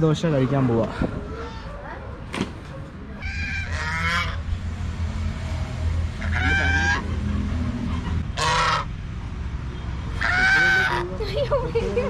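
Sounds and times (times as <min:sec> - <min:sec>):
loud drawn-out animal calls: 0:00.8 - 0:02.0, 0:03.2 - 0:04.5, 0:06.1 - 0:09.0, 0:10.1 - 0:11.2.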